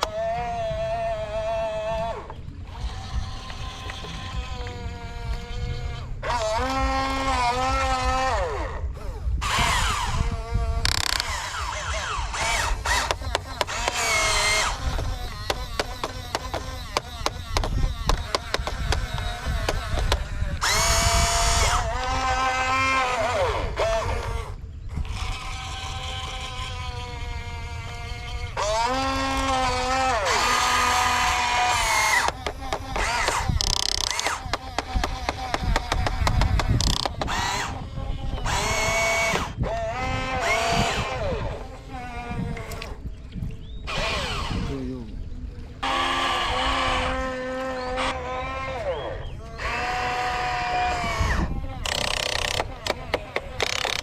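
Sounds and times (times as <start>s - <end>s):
electric motor whine: 0.0s - 54.0s.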